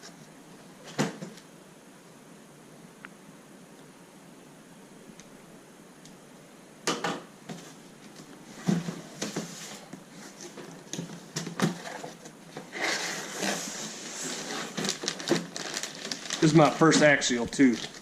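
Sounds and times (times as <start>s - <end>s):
packaging rustling: 8.1s - 18.0s.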